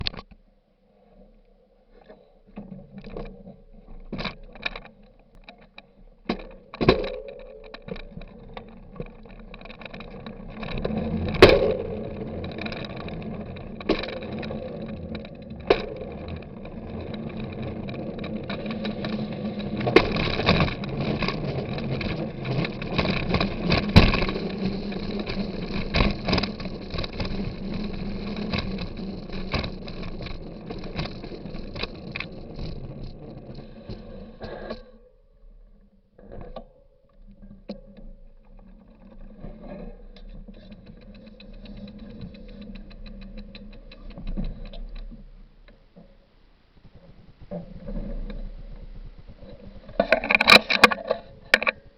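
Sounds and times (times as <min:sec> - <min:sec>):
bicycle tyre rumble: 0:01.8 - 0:51.9
clicks and knocks: 0:04.0 - 0:32.8, 0:47.5 - 0:51.9
bicycle rattling over bumps: 0:04.0 - 0:34.6, 0:38.3 - 0:51.9.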